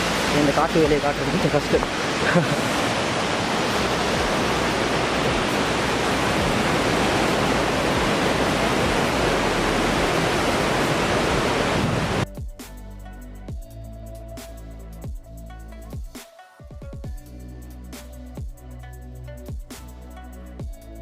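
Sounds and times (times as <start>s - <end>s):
waterfall rushing: 0.0s - 12.2s
electronic music with a beat: 12.2s - 21.0s.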